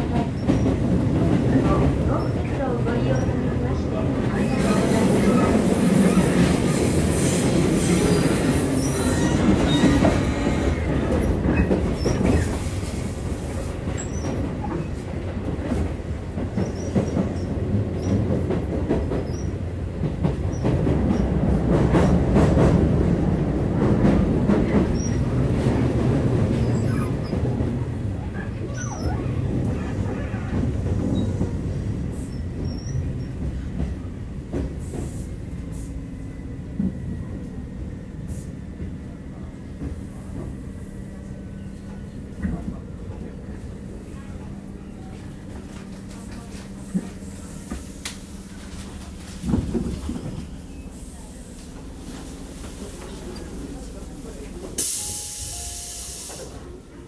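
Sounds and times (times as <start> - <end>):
train wheels rumbling on rails: 0.0 - 57.0
high hissing squeal: 4.6 - 10.6.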